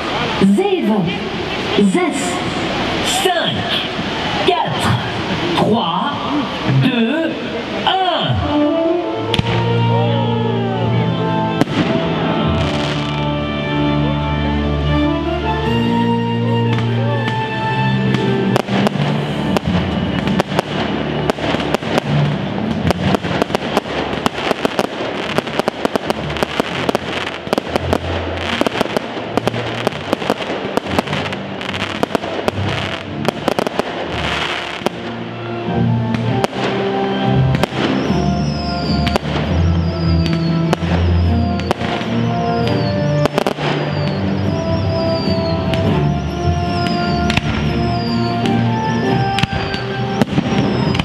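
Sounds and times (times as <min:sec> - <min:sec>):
loud music: 0:06.6 - 0:51.0
firework bangs and crackling: 0:09.3 - 0:09.8, 0:11.5 - 0:13.4, 0:16.7 - 0:51.0.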